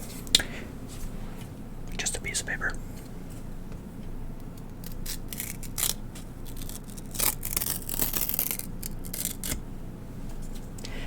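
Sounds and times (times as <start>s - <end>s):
paper tearing: 4.8s - 9.6s.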